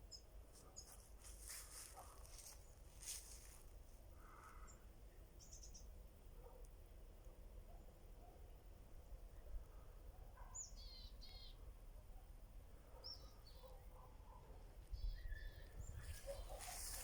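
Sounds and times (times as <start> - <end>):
songbird chirps: 0.0 - 3.5, 4.2 - 6.6, 10.3 - 12.1, 12.8 - 17.0
low steady background noise: 0.0 - 17.0.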